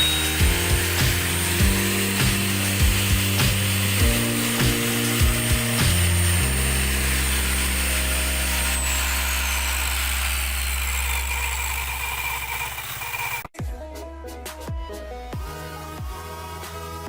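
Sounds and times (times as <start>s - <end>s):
motor generator humming: 0.0s - 13.5s.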